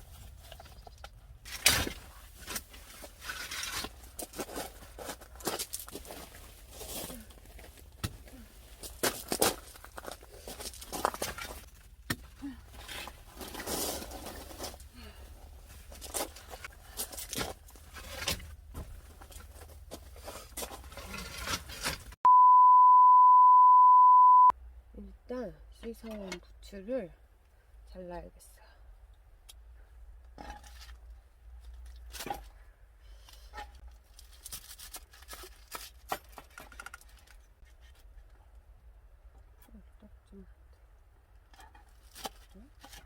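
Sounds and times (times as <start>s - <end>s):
steady electronic beep: 22.3s - 24.5s
clicks and rustles of handling: 33.2s - 38.6s.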